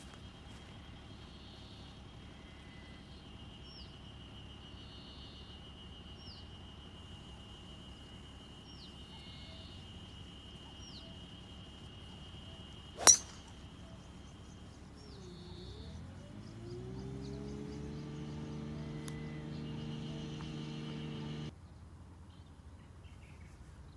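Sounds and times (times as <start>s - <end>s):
birds calling: 8.1s - 21.5s
golf club striking ball: 13.0s - 13.7s.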